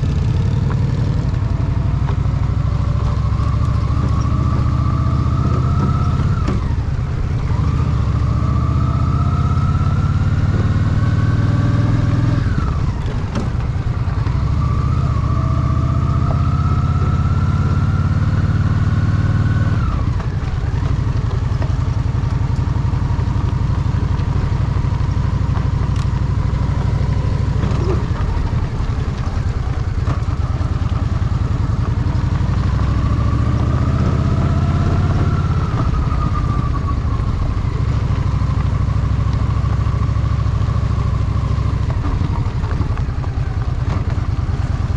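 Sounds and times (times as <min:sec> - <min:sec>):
motorcycle engine shifting gears: 0:00.0 - 0:44.9.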